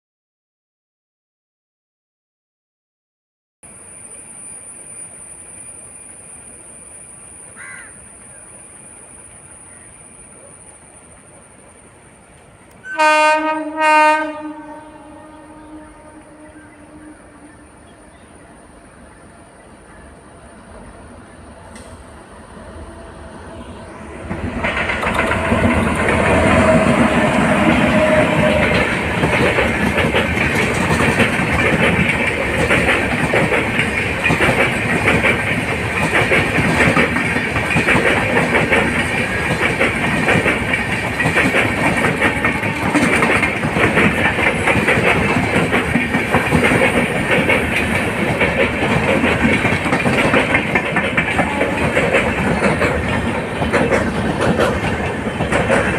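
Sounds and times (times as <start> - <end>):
train wheels clattering over joints: 24.2 - 55.9.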